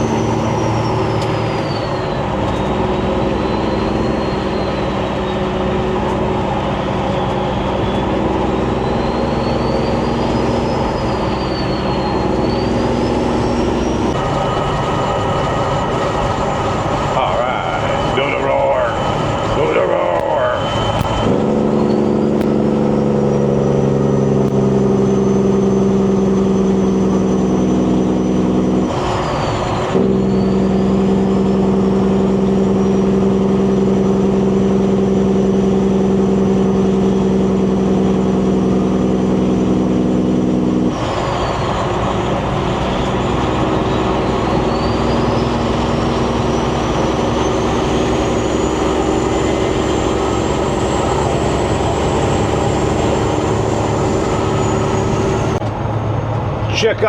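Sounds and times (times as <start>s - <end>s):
high turbo whistle: 0.0s - 56.4s
diesel truck engine under load: 0.0s - 57.0s.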